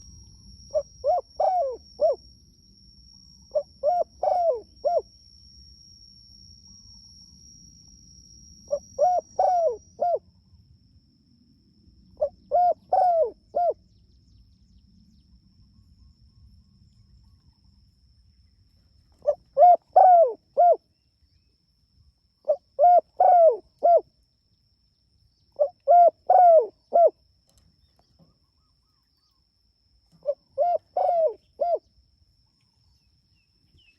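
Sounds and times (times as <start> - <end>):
faint high-pitched whine: 0.0 - 33.9
dove cooing: 0.7 - 2.2, 3.5 - 5.0, 8.7 - 10.2, 12.2 - 13.8, 19.2 - 20.8, 22.5 - 24.0, 25.6 - 27.1, 30.2 - 31.8.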